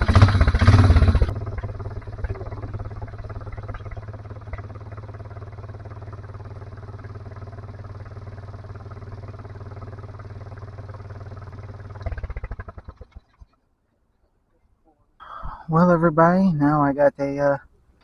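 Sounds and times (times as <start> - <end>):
atv engine idling: 0.0 - 13.6.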